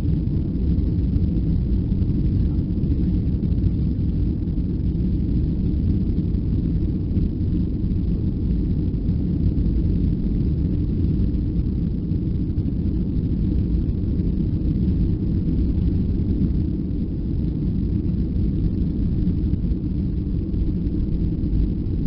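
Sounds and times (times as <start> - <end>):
jet engines in aircraft cabin: 0.0 - 22.0.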